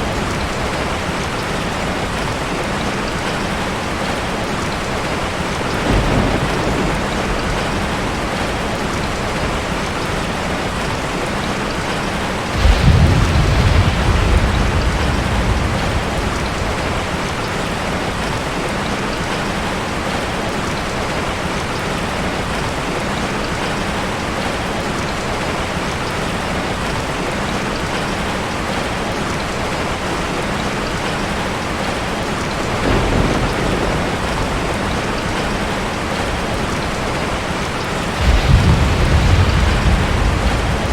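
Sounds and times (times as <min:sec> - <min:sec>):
heavy rain falling: 0:00.0 - 0:40.9
thunder rolling: 0:05.1 - 0:11.2, 0:12.2 - 0:18.4, 0:32.8 - 0:40.9.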